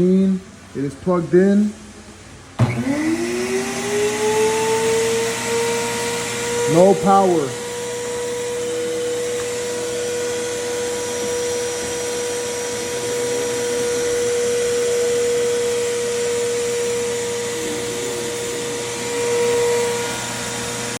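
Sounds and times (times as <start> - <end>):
pressure washer motor whining: 2.6 - 21.0.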